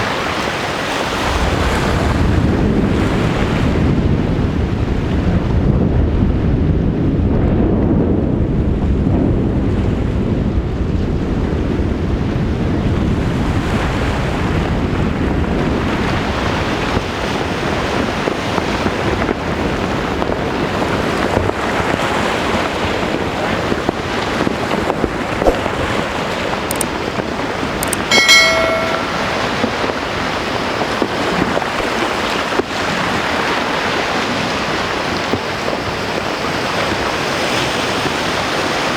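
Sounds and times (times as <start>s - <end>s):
short pitched tone: 28.0s - 29.6s.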